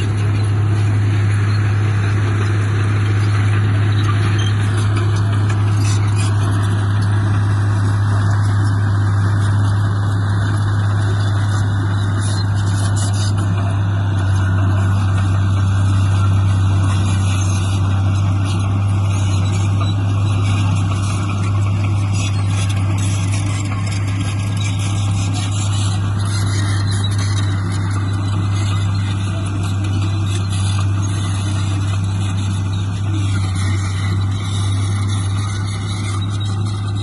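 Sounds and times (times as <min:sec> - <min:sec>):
heavy diesel engine running: 0:00.0 - 0:37.0.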